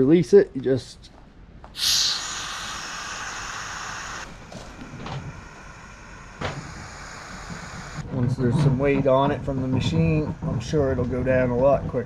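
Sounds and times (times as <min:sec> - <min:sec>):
compressed air hissing: 0:01.8 - 0:08.1.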